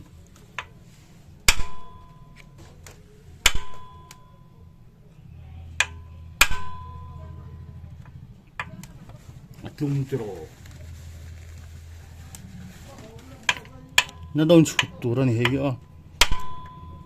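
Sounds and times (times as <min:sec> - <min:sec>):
faint low hum: 0:00.0 - 0:17.0
tool striking metal with ringing: 0:01.4 - 0:02.4, 0:03.4 - 0:04.4, 0:05.8 - 0:07.3, 0:16.2 - 0:17.0.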